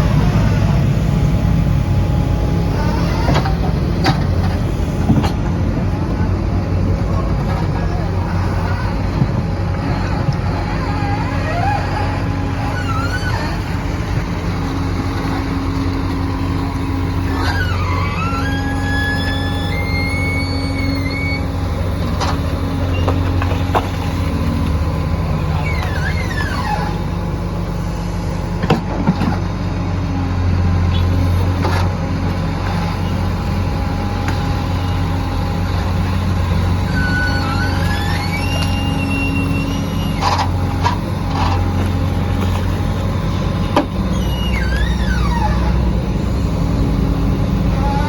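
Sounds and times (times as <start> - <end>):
excavator diesel engine running: 0.0 - 48.0
high squeals and whines: 7.8 - 14.1, 16.2 - 23.6, 25.4 - 27.2, 36.6 - 41.7, 43.8 - 46.5.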